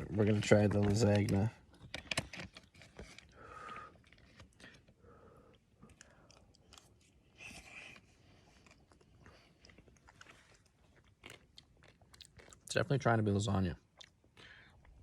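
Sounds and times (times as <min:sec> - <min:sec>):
person chewing: 0:02.6 - 0:12.7, 0:13.8 - 0:15.0.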